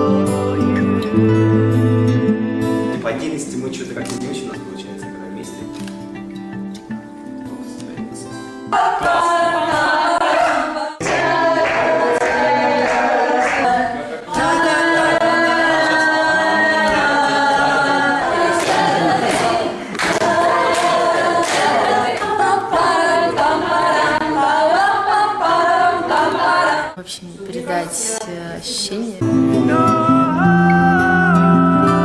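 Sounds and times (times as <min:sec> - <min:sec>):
choir singing unaccompanied: 0:08.7 - 0:27.0, 0:29.3 - 0:32.0.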